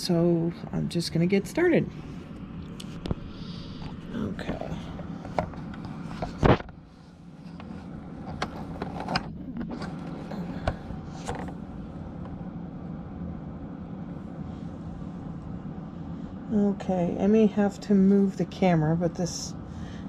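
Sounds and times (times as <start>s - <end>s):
steady low hum: 0.0s - 20.0s
knocks and clicks of handling: 3.8s - 6.8s, 7.5s - 11.6s.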